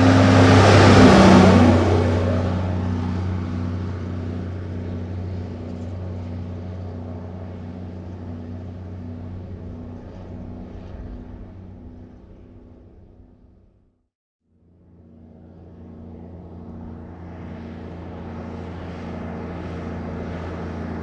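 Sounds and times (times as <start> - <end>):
truck engine passing by: 0.0 - 11.9.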